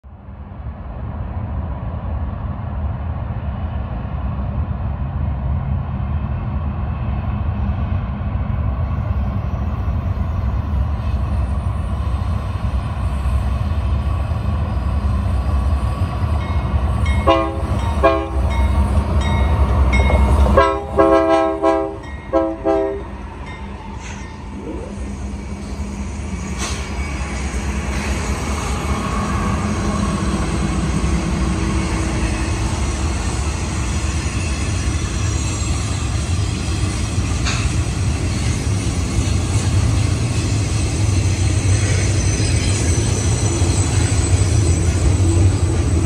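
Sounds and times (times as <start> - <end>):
locomotive engine and rail rumble: 0.0 - 46.0
train air horn blasts: 17.2 - 18.5, 20.5 - 23.2.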